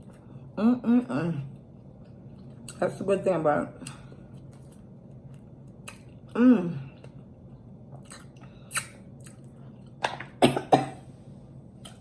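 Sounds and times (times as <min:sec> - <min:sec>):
person chewing wetly: 0:01.6 - 0:02.8, 0:03.8 - 0:10.0.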